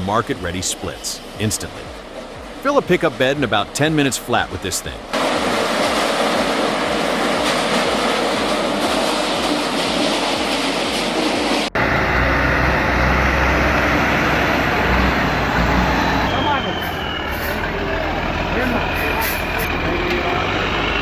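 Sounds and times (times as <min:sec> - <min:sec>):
truck engine rumbling: 0:00.0 - 0:21.0
firewood processor running: 0:11.8 - 0:21.0.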